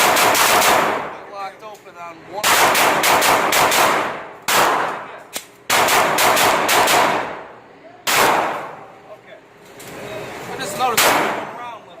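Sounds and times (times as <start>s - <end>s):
gunshots with echoing tails: 0.0s - 1.2s, 2.4s - 7.5s, 8.1s - 8.8s, 11.0s - 11.6s.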